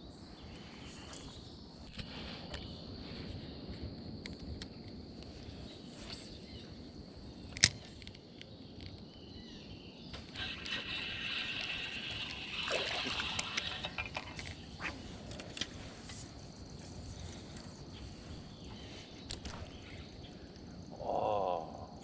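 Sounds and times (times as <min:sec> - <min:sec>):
creek water splashing and trickling: 0:10.2 - 0:17.9.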